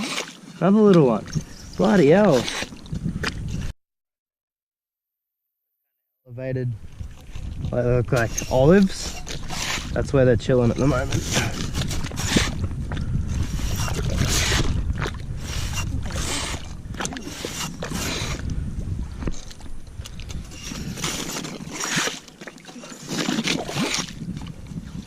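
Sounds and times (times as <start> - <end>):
paddle splashing in water: 0.0 - 0.6, 6.8 - 10.0, 10.6 - 18.5, 19.2 - 25.0.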